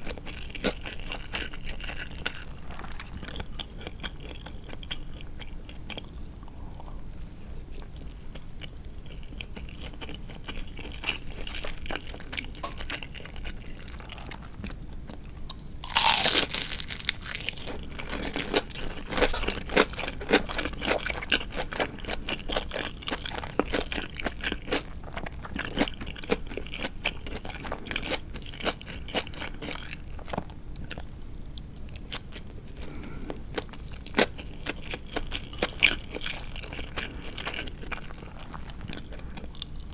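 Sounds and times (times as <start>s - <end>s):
crunchy chewing of fried chicken: 0.0s - 39.9s
loud crunch of a bite: 15.5s - 21.2s.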